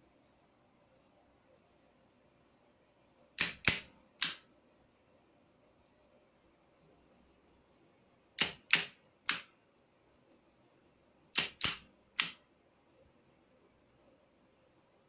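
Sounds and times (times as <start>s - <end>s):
sharp clicks: 3.4s - 4.4s, 8.4s - 9.5s, 11.3s - 12.4s.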